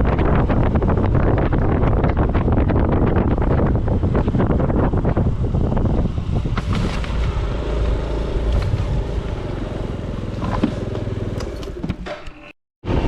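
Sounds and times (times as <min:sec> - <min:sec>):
wind buffeting microphone: 0:00.0 - 0:12.0
motor scooter running: 0:05.2 - 0:12.1.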